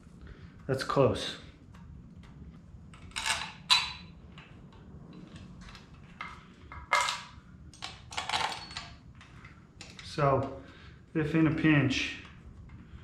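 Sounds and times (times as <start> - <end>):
metal tools clinking and tapping: 6.2 - 9.0.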